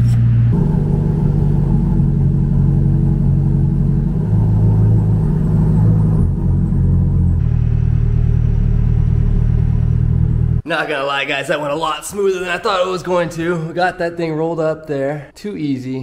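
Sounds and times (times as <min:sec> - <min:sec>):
car engine running at low speed: 0:00.0 - 0:10.6.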